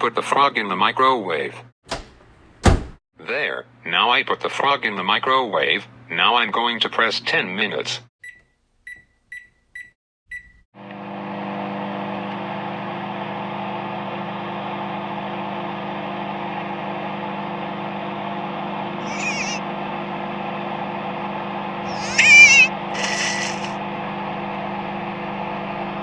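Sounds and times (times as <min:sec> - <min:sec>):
microwave oven humming: 0:01.9 - 0:03.0, 0:10.3 - 0:26.0
microwave keypad beep: 0:08.2 - 0:10.6
high warbling squeak: 0:21.9 - 0:23.8.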